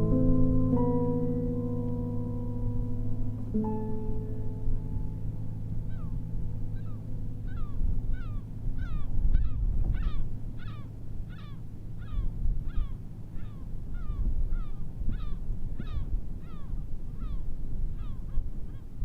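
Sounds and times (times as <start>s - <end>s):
sustained music note: 0.0s - 8.7s
wind and surf rumble: 0.0s - 19.0s.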